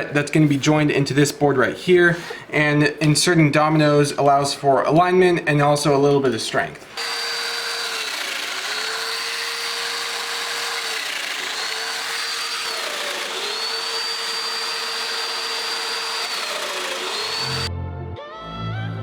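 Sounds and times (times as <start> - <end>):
electric power tool motor: 7.0 - 17.7.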